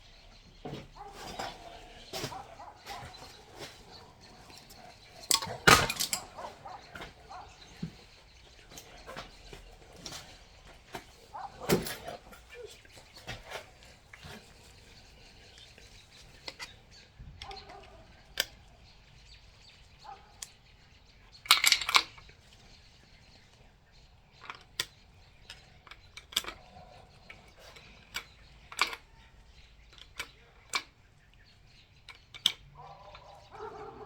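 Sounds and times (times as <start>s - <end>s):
metallic clicks of engine parts: 0.7s - 16.8s, 21.3s - 22.7s, 24.4s - 33.7s.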